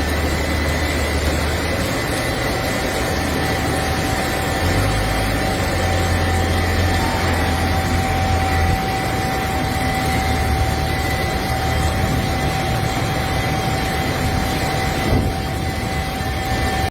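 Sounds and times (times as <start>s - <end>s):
heavy machine engine: 0.0s - 16.9s
heavy rain hissing: 0.0s - 16.9s
high whine: 0.0s - 16.9s.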